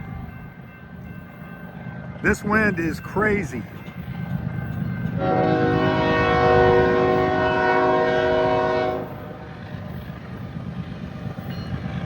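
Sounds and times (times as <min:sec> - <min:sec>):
locomotive air horn: 0:05.2 - 0:09.4.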